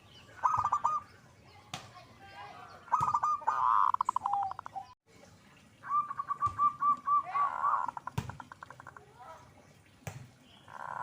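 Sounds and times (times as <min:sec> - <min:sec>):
dove cooing with stuttering trill: 0:00.4 - 0:01.1, 0:03.0 - 0:04.9, 0:05.8 - 0:09.0.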